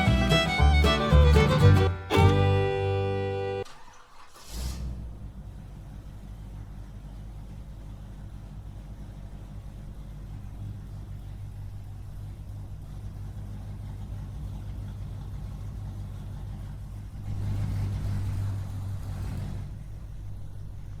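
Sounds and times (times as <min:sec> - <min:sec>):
small engine running: 0:00.0 - 0:03.6.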